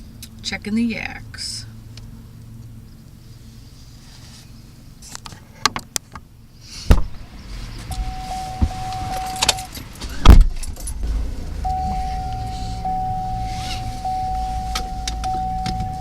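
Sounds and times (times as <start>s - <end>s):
car engine rumble: 0.0s - 16.0s
car doors thudding shut: 6.9s - 7.2s, 7.9s - 16.0s
dashboard electronic chime: 7.9s - 9.7s, 11.7s - 16.0s.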